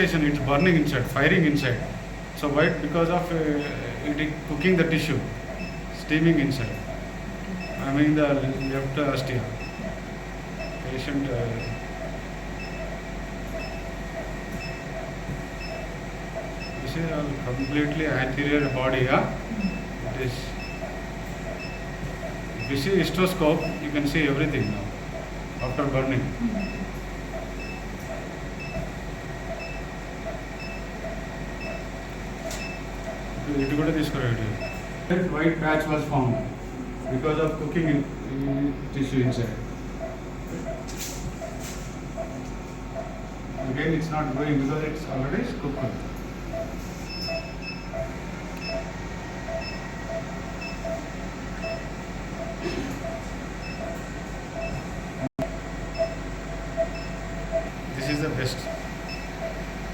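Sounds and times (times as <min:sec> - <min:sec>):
steady machine hum: 0:00.0 - 0:59.9
high electronic beeps: 0:46.5 - 0:48.9.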